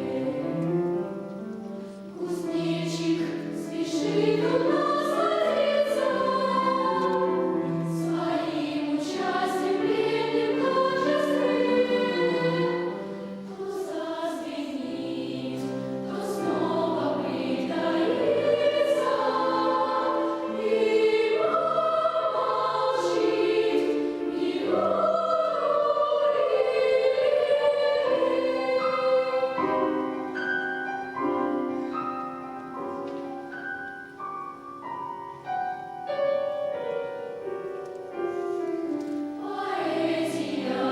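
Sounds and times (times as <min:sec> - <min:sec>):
children's choir singing: 0:00.0 - 0:37.5, 0:38.1 - 0:40.9
piano accompaniment: 0:00.0 - 0:40.9.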